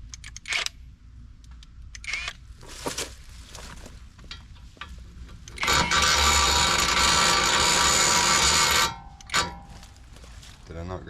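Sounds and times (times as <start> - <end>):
tools clicking: 0.0 - 0.8, 1.4 - 2.4, 8.8 - 9.7
impact wrench running: 5.5 - 9.8.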